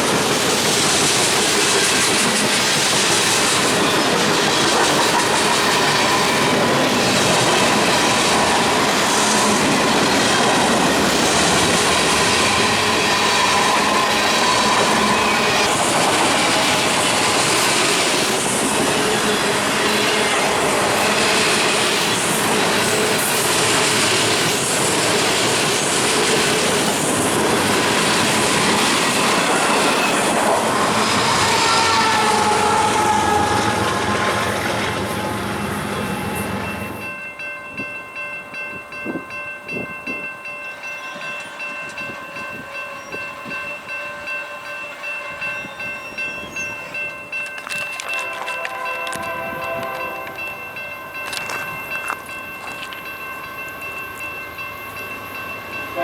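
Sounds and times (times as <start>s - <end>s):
freight train rumbling past: 0.0s - 56.0s
wheel squeal: 11.8s - 17.8s.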